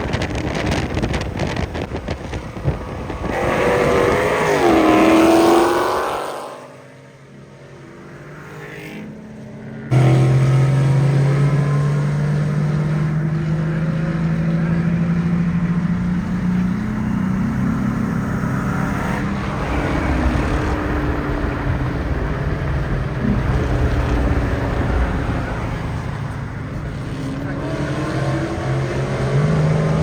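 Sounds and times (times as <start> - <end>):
car engine running hard: 0.0 - 6.2, 8.8 - 30.0.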